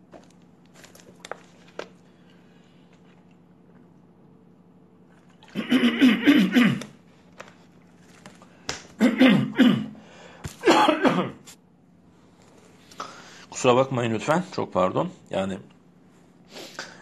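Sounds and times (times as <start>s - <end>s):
man coughing hoarsely: 5.6s - 7.0s, 9.0s - 10.0s, 10.6s - 11.5s.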